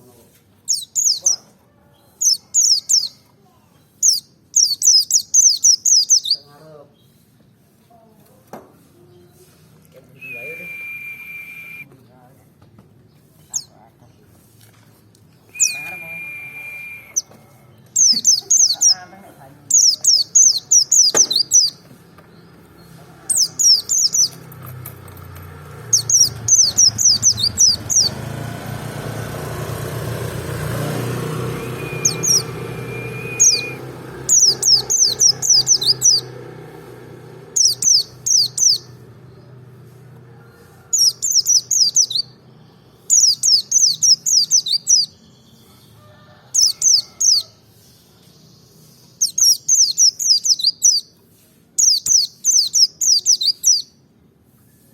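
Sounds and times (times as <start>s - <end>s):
bird chirping rapidly: 0.6s - 1.5s, 2.1s - 3.3s, 3.9s - 7.3s, 15.4s - 24.6s, 25.6s - 39.7s, 40.9s - 45.9s, 46.5s - 54.1s.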